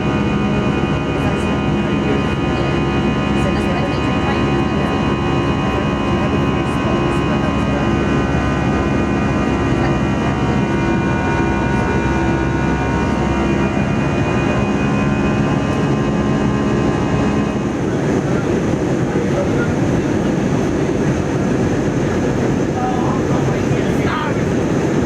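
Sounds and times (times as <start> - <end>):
engine whining tones: 0.0 - 24.9
jet engines roaring: 0.0 - 25.0.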